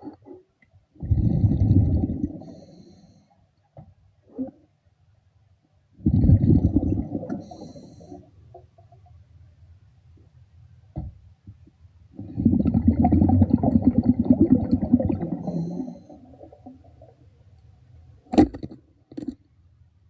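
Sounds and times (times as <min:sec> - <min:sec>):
breath bubbling underwater: 0:01.0 - 0:02.7, 0:06.0 - 0:08.3, 0:12.2 - 0:17.2.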